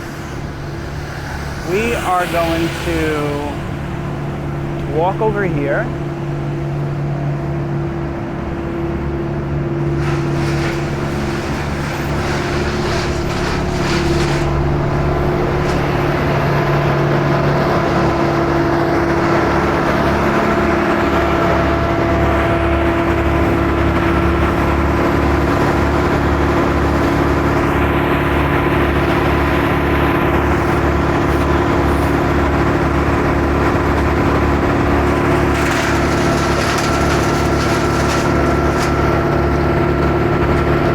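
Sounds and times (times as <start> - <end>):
engine droning loudly: 0.0 - 9.9.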